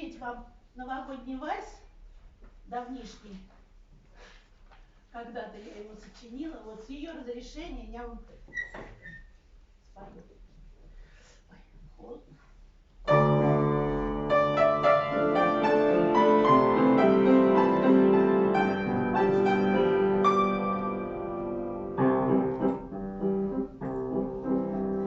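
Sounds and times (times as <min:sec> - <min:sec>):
piano keyboard playing waltz: 0:13.1 - 0:25.0.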